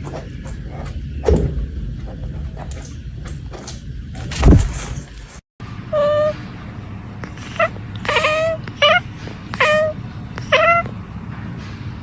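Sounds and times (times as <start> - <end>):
cat meowing: 5.9 - 6.4, 7.5 - 11.0.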